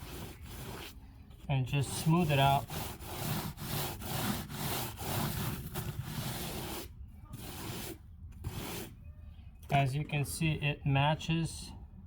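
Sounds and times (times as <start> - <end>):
hand tool rubbing stucco wall: 0.0 - 1.0, 1.6 - 9.0.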